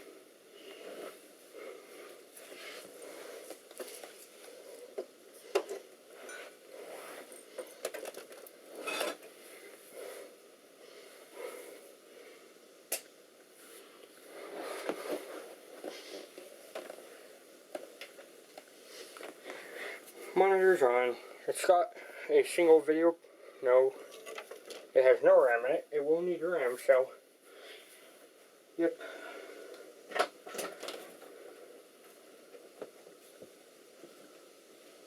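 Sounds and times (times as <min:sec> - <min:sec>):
rustling: 0:00.0 - 0:11.9.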